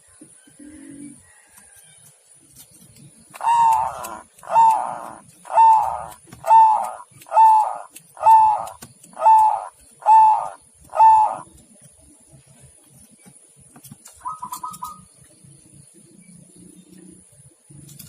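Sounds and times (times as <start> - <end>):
dove cooing: 3.3 - 11.5.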